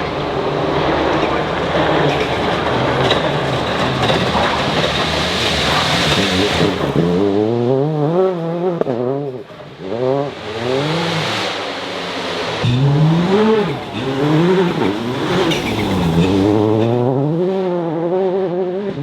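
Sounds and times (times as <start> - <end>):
tyres on gravel: 0.0 - 7.6, 9.5 - 17.1
rally car engine revving: 0.0 - 19.0.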